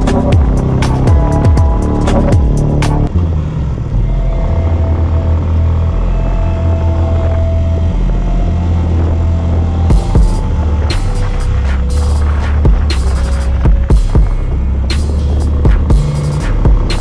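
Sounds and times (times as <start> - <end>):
background music with a beat: 0.0 - 3.1, 9.9 - 17.0
motorcycle engine running: 0.0 - 17.0.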